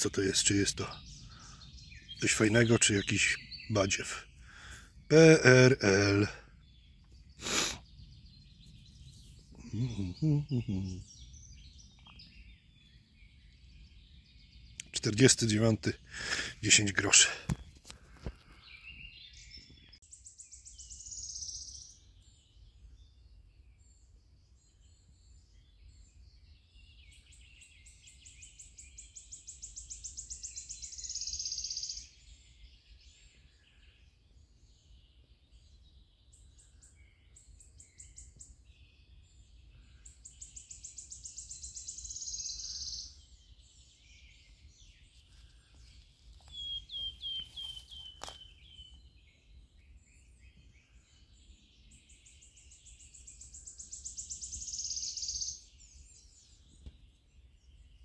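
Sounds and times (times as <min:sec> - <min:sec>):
songbird singing: 0:00.0 - 0:58.0.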